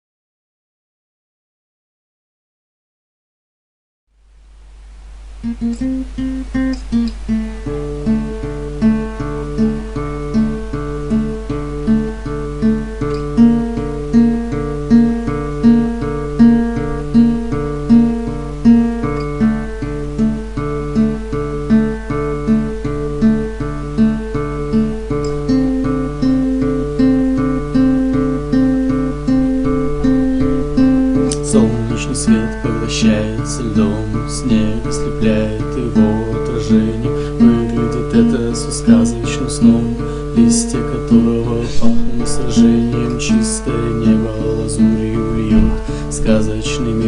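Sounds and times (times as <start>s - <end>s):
acoustic guitar pattern: 5.0s - 47.0s
low drone: 28.9s - 47.0s.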